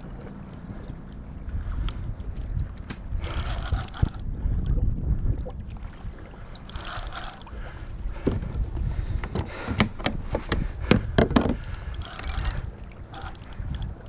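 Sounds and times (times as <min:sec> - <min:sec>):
wind buffeting microphone: 0:00.0 - 0:14.0
water sloshing against kayak hull: 0:05.5 - 0:14.0
sharp clicks and knocks: 0:09.2 - 0:12.6.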